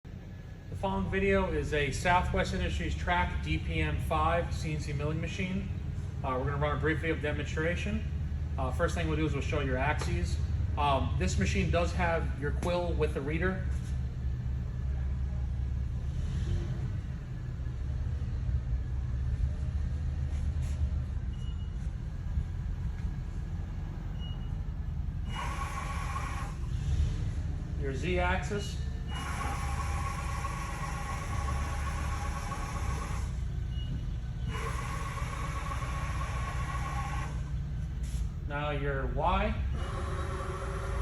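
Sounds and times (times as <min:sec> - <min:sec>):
low machinery hum: 0:00.0 - 0:41.0
milling machine drive whine: 0:21.0 - 0:38.8, 0:39.5 - 0:41.0.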